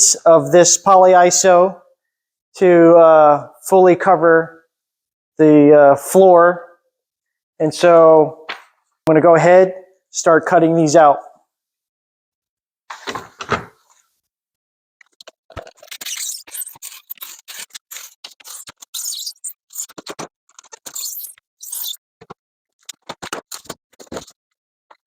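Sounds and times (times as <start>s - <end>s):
knife scraping foam board: 15.5s - 22.0s.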